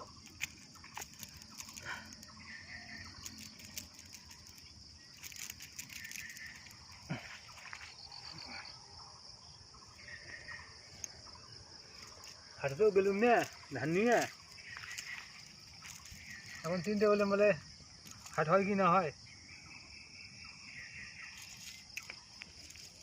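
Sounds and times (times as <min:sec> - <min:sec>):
faint clicks and ticks: 0:00.0 - 0:07.1
insects shrilling: 0:00.0 - 0:23.0.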